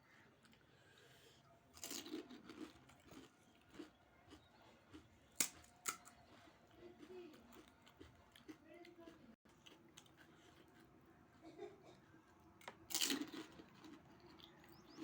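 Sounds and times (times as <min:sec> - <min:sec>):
soft chewing: 0:00.0 - 0:15.0
crunchy bite: 0:01.8 - 0:06.4, 0:12.9 - 0:15.0.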